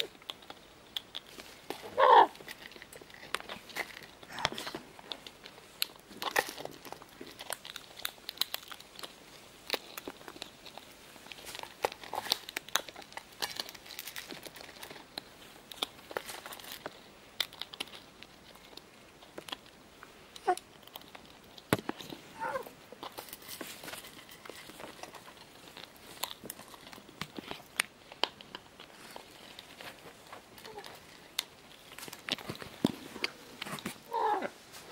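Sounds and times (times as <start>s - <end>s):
crackling and crunching: 0.0s - 34.9s
tearing sounds: 20.4s - 34.9s.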